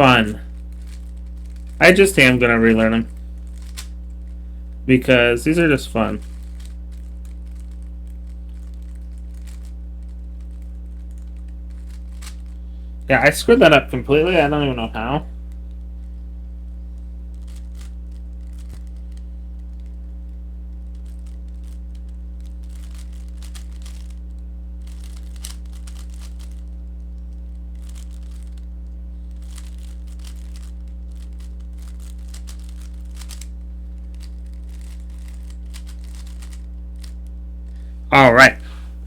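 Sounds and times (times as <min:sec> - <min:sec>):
electrical hum: 0:00.0 - 0:39.0.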